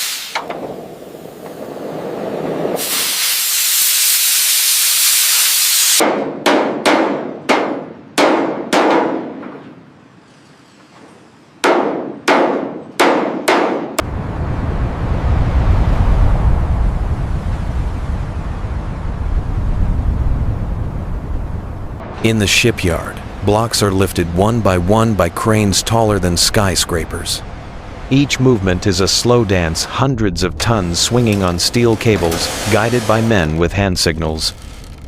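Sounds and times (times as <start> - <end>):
loud hiss of torch: 0.0 - 6.0, 31.0 - 33.6
low steady rumble: 14.0 - 35.0.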